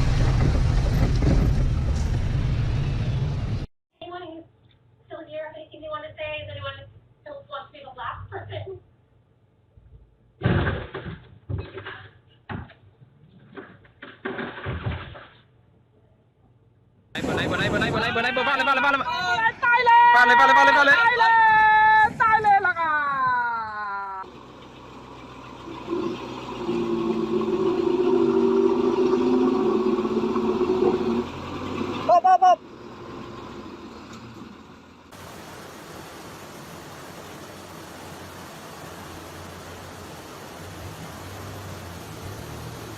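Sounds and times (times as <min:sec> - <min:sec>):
vehicle engine running: 0:24.2 - 0:42.9.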